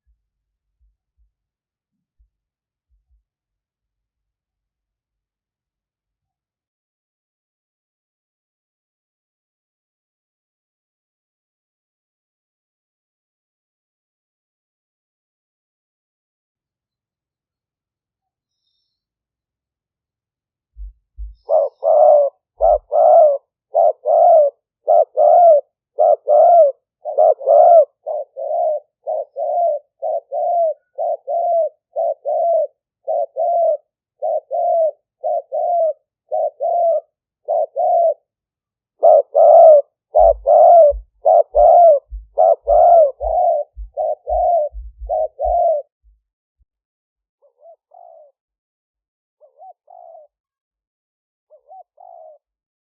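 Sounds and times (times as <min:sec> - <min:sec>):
low thumps: 0:20.8 - 0:21.5, 0:40.9 - 0:46.2
dove cooing: 0:20.8 - 0:38.3, 0:39.0 - 0:46.0, 0:47.4 - 0:48.4, 0:49.4 - 0:50.4, 0:51.5 - 0:52.5.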